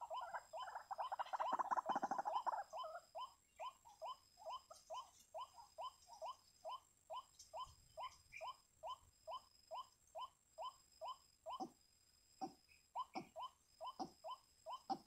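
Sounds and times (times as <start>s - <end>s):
waterhen calling: 0.0s - 3.0s.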